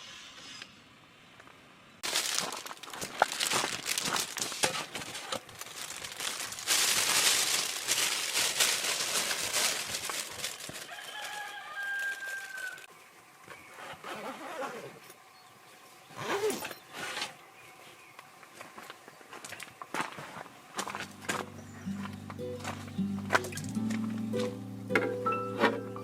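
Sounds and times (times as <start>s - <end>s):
crackling rustling noise: 2.0s - 15.0s, 16.1s - 26.0s
rooster crowing: 10.8s - 12.9s.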